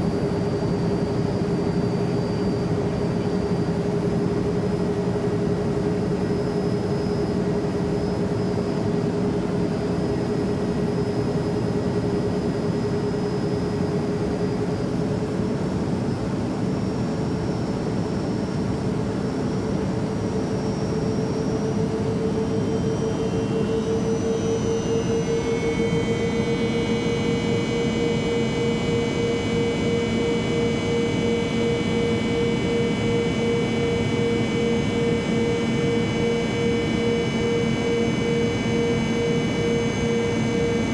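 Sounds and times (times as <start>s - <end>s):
hum: 19.9s - 40.9s.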